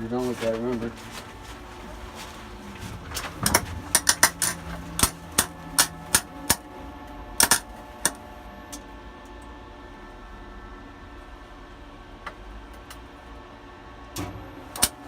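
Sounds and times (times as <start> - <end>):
steady low hum: 0.0 - 15.0
welding arc popping and cracking: 3.1 - 6.7, 7.4 - 8.2, 14.7 - 15.0.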